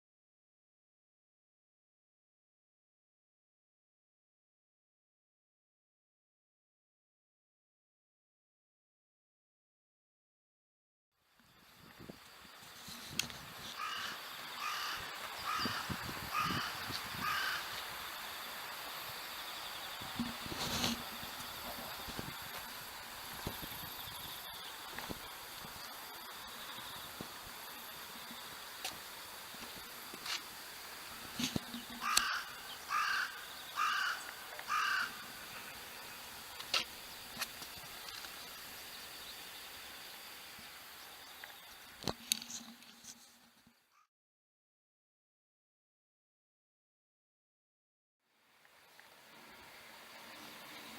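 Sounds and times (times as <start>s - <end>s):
crow cawing: 13.8s - 17.8s, 32.0s - 35.4s.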